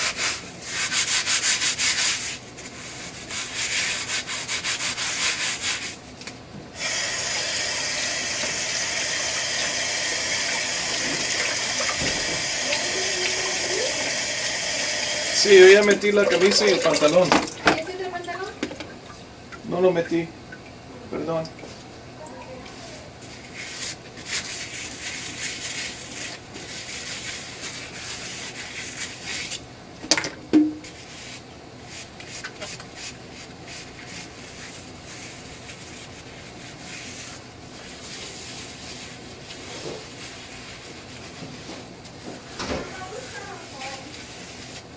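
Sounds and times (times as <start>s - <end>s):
rubbing and rustling handling noise: 0.0s - 19.0s, 22.5s - 29.8s, 30.8s - 44.9s
rhythmic scrubbing: 6.8s - 18.6s
water running from a tap: 6.8s - 18.6s.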